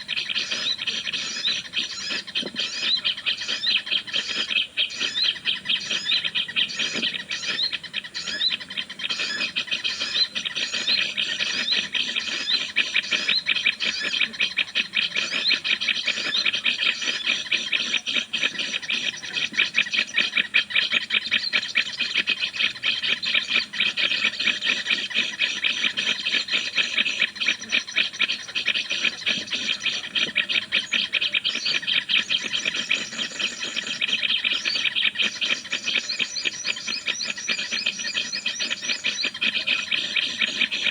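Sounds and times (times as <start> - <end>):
birds chattering: 0.0 - 40.9.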